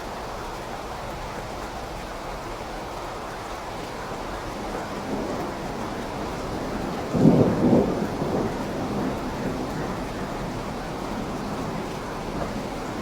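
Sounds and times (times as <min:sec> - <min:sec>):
steady rain: 0:00.0 - 0:13.0
thunder rolling: 0:04.6 - 0:13.0.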